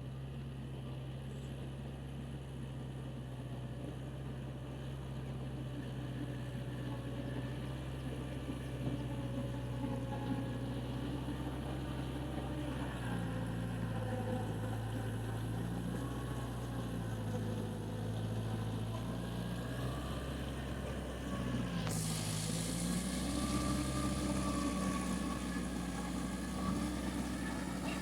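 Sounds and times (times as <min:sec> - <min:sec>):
engine running steadily: 0:00.0 - 0:28.0
steady hiss: 0:21.9 - 0:23.6.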